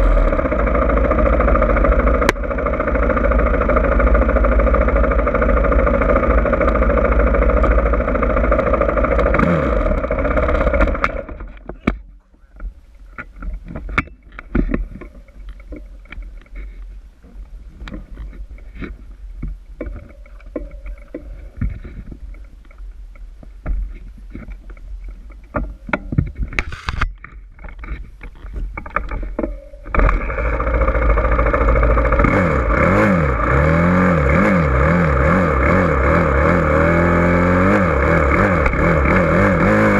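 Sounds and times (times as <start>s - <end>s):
dirt bike engine revving: 0.0s - 11.5s, 29.9s - 39.9s
scattered knocks and clatter: 4.4s - 32.5s
wind rumble on microphone: 12.7s - 30.2s.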